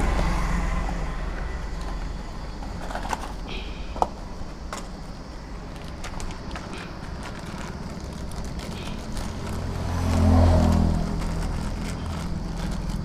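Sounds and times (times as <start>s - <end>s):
vehicle engine passing by: 0.0s - 2.7s, 9.1s - 13.0s
steady low hum: 0.0s - 13.0s.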